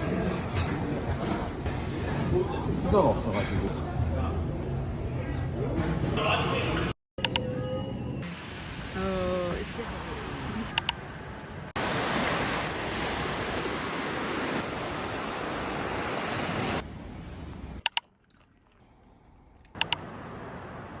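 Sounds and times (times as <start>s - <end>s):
ocean surf on a beach: 8.3s - 16.8s
quick double click: 19.8s - 20.0s.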